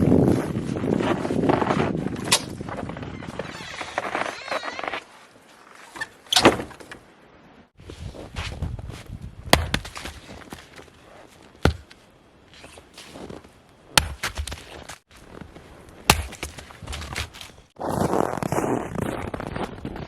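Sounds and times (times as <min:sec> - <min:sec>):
axe chopping firewood: 0:09.5 - 0:10.9, 0:11.6 - 0:12.0, 0:13.9 - 0:15.0, 0:16.0 - 0:17.6.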